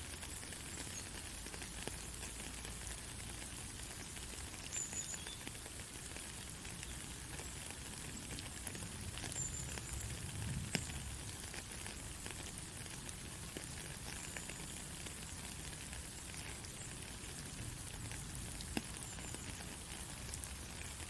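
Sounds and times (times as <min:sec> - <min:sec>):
heavy rain falling: 0:07.4 - 0:21.0.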